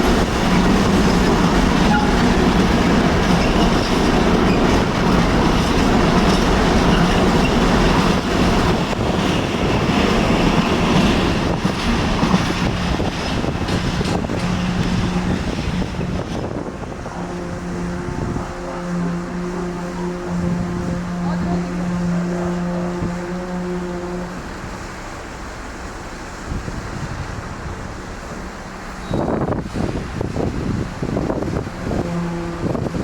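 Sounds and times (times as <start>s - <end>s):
wheels clicking over rail joints: 0.0s - 17.8s
train wheels on rails: 0.0s - 33.0s.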